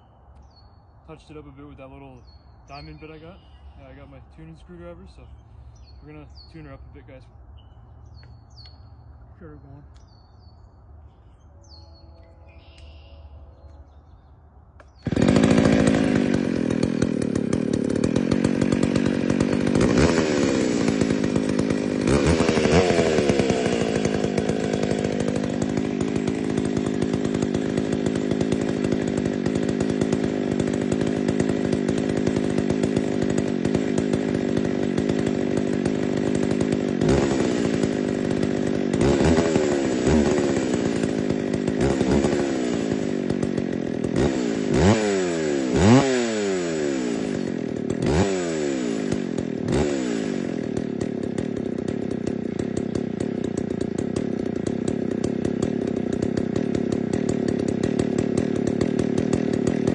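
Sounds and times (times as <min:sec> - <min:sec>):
chainsaw engine idling: 0:00.4 - 0:14.2, 0:14.8 - 0:59.9
chainsaw throttle revs: 0:14.8 - 0:59.9.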